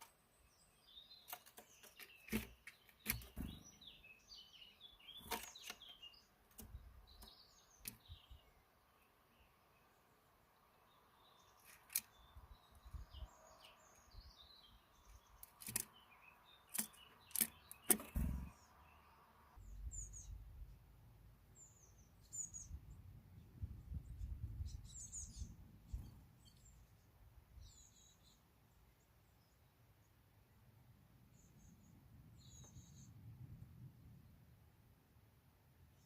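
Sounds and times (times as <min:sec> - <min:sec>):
small birds chirping: 0:00.0 - 0:33.6
sharp clicks: 0:15.4 - 0:15.9, 0:16.7 - 0:18.5.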